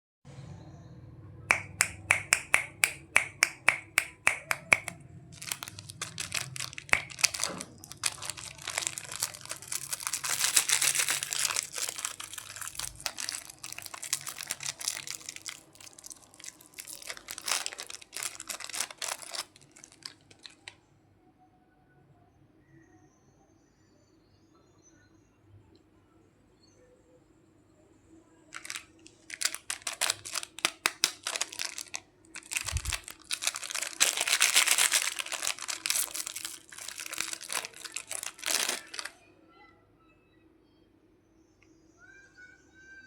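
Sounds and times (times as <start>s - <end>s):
plastic packaging crinkling: 1.5s - 20.8s, 28.5s - 39.2s.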